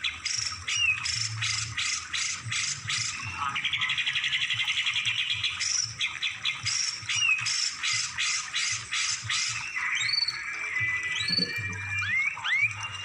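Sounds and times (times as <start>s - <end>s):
songbird singing: 9.2s - 13.0s.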